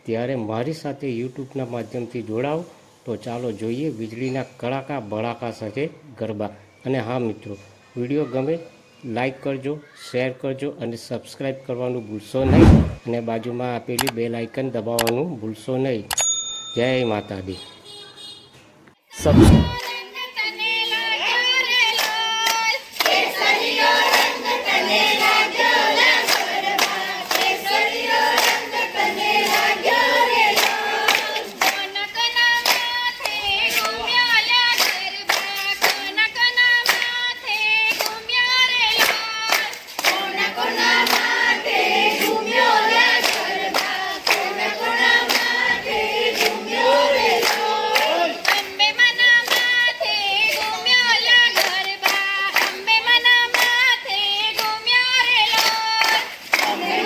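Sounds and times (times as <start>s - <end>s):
group of voices singing: 12.4s - 13.0s, 19.2s - 57.0s
rhythmic hand claps: 21.7s - 57.0s.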